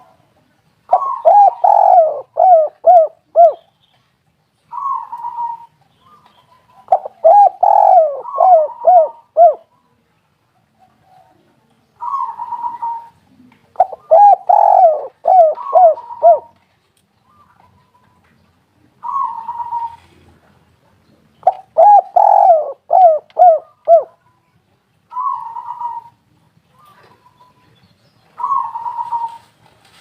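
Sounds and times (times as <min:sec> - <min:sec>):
dove cooing: 0:00.9 - 0:03.6, 0:04.7 - 0:05.8, 0:06.5 - 0:09.7, 0:12.0 - 0:16.6, 0:19.0 - 0:20.5, 0:21.4 - 0:24.2, 0:25.1 - 0:27.6, 0:28.4 - 0:29.6.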